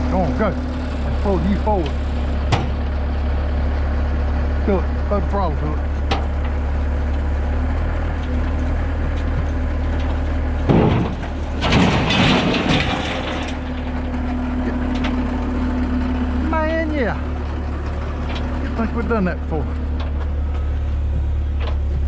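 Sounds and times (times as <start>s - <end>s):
truck crashing and rattling: 0.0s - 3.4s, 4.7s - 22.0s
heavy engine running: 0.0s - 22.0s
loud thud: 10.7s - 13.5s.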